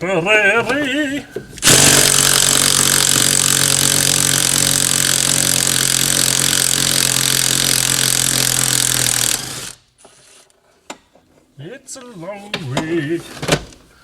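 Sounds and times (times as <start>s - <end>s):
power tool running: 1.6s - 9.8s.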